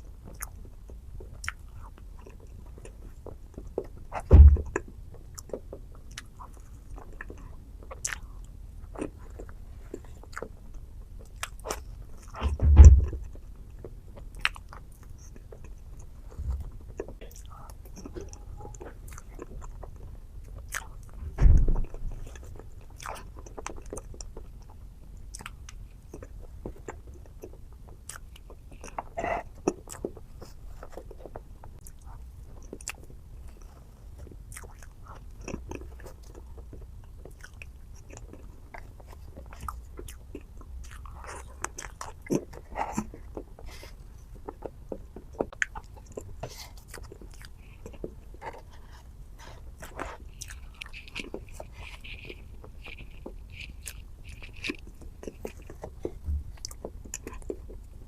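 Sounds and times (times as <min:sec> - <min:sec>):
person chewing with crunches: 0:00.0 - 0:58.0
loud low thump: 0:04.3 - 0:04.8, 0:12.4 - 0:13.2, 0:21.2 - 0:22.0.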